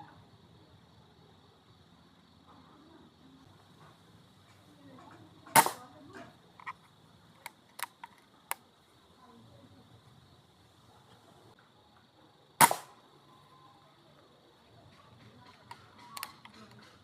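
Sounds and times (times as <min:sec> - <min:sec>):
air rifle shot: 0:05.5 - 0:05.9, 0:12.6 - 0:13.0.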